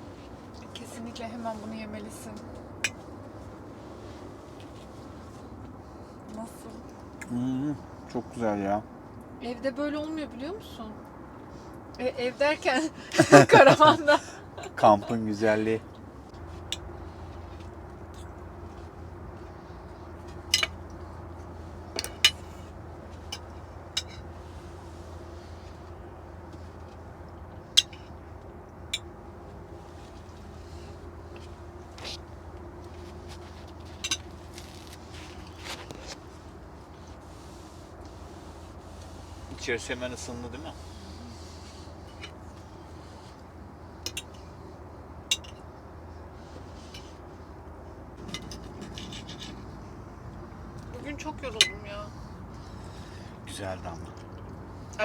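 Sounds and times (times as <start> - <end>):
steady low hum: 0.0 - 55.0
cutlery clinking against dishes: 45.3 - 45.6.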